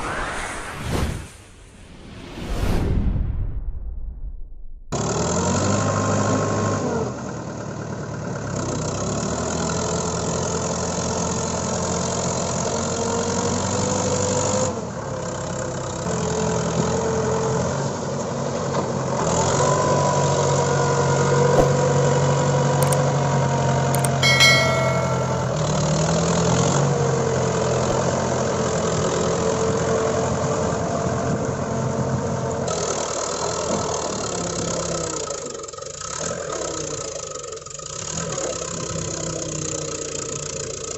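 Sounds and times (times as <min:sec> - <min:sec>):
brief high-pitched tone: 0:24.2 - 0:25.7.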